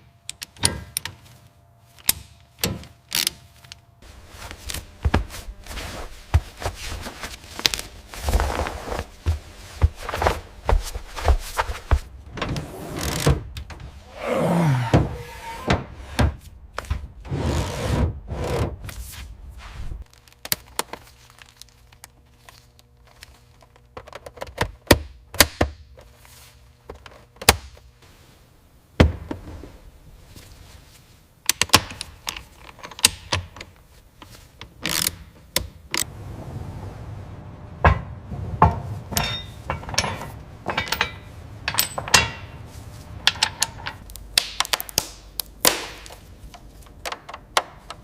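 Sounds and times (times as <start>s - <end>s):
scraping: 37.2s - 44.2s
thunks and knocks: 37.7s - 42.6s.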